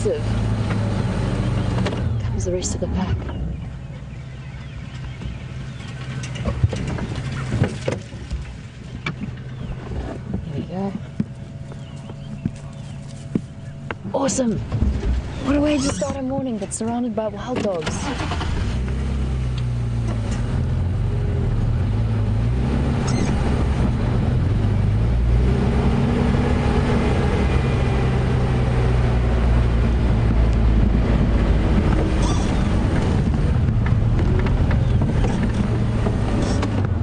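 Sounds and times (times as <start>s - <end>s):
vehicle engine running: 0.0s - 37.0s
short knocks and rattles: 5.0s - 12.7s, 30.8s - 37.0s.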